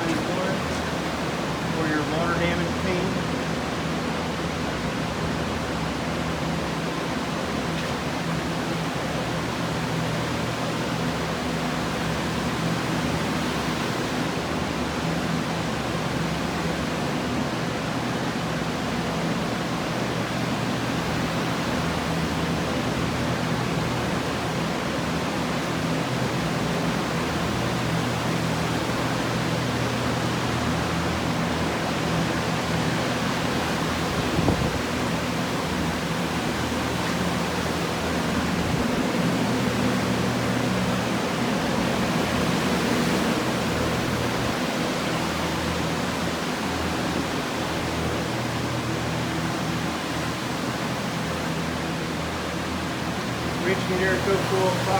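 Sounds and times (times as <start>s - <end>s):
air movers blowing air: 0.0s - 4.2s, 19.2s - 54.9s.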